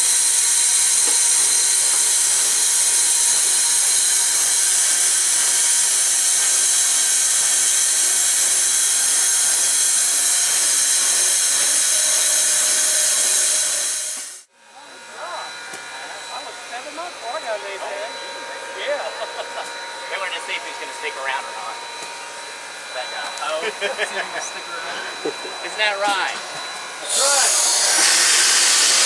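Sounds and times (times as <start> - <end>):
loud hiss of steam: 0.0 - 14.5, 27.0 - 29.0.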